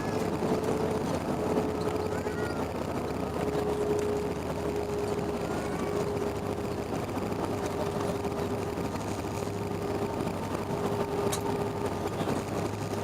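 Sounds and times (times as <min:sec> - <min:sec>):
airliner engine and airflow noise: 0:00.0 - 0:13.0
constant hum tone: 0:00.0 - 0:13.0.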